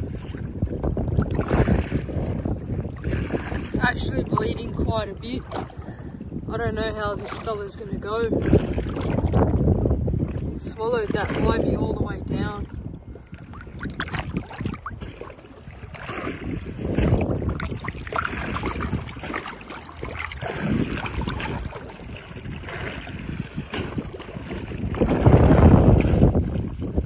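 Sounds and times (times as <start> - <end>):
water sloshing around boat: 0.0 - 27.0
wind buffeting microphone: 0.0 - 27.0.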